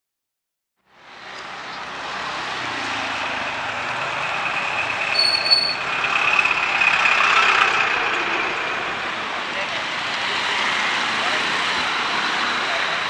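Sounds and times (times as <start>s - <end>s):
short high beeps: 5.1s - 5.8s.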